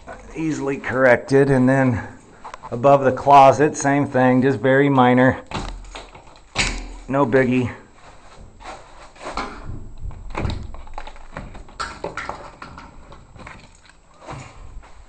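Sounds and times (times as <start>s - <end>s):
rustling: 5.5s - 15.0s
low thumps: 9.3s - 11.8s.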